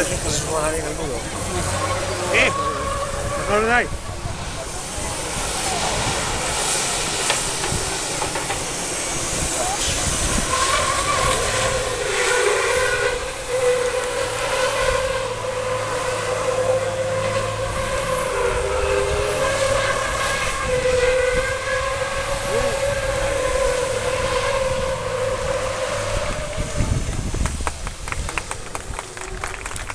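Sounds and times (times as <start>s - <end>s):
truck air horns blaring: 0.0s - 4.0s, 8.7s - 27.0s
people clapping: 27.1s - 29.9s.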